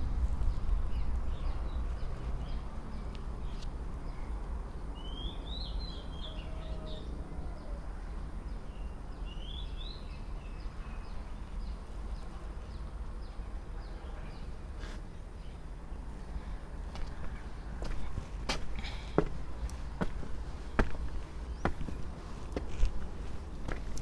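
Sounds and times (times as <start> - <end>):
low rumble: 0.0 - 3.0
birds chirping: 17.0 - 24.0.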